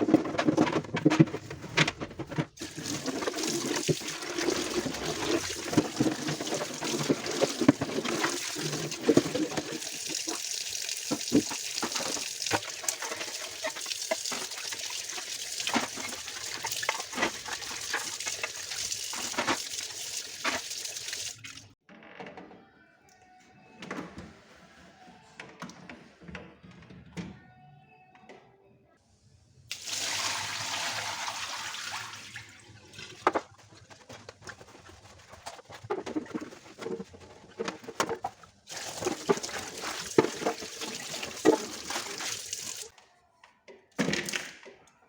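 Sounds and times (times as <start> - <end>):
tap water running and splashing: 2.5 - 21.8, 29.7 - 42.9.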